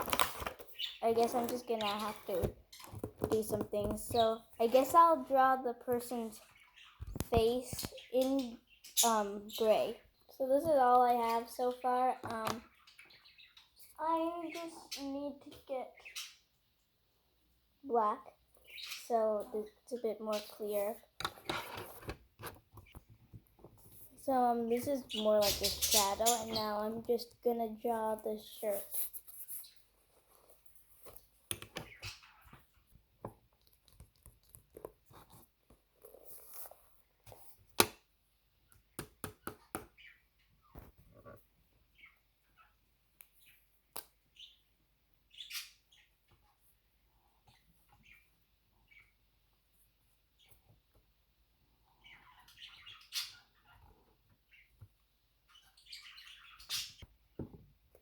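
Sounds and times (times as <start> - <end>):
budgies chirping and squawking: 6.3 - 10.0, 10.6 - 16.5, 18.6 - 21.8, 24.8 - 26.8, 31.8 - 32.7, 45.3 - 46.1, 51.9 - 54.7, 55.5 - 57.0.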